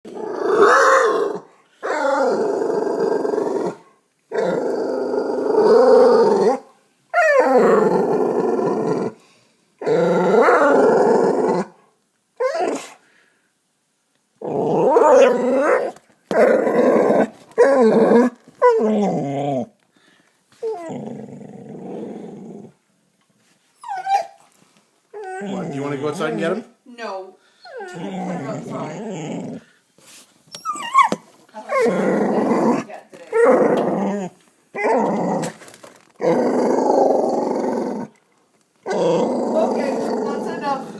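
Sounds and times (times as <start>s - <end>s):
dog growling: 0.1s - 9.2s, 9.8s - 11.8s, 14.4s - 19.8s, 20.6s - 22.8s, 25.2s - 26.6s, 27.6s - 29.8s, 31.6s - 38.2s, 38.8s - 40.9s.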